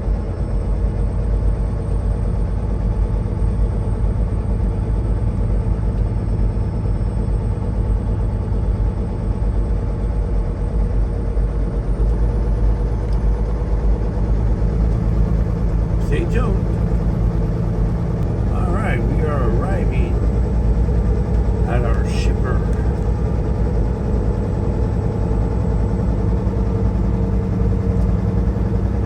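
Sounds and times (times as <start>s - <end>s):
truck diesel engine: 13.9s - 28.4s
road rumble: 14.8s - 25.7s.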